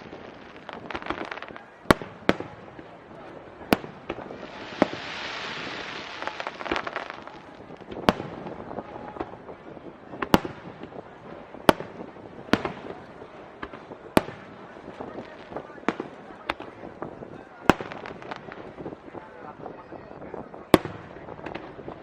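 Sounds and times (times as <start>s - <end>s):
crackling hiss: 0.0s - 22.0s
firework shells bursting: 3.7s - 8.4s.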